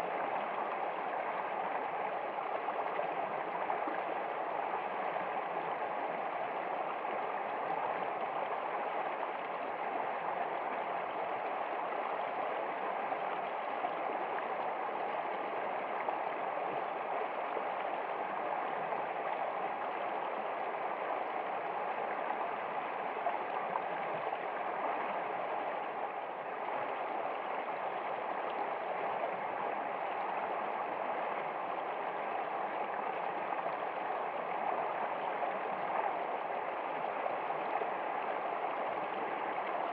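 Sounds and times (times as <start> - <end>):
stream running water: 0.0 - 39.9.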